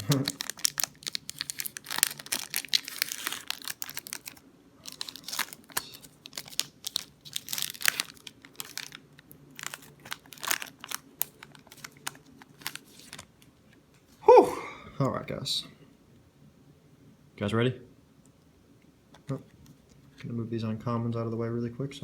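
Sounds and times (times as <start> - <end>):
foil wrapper crinkling and tearing: 0.0 - 13.5.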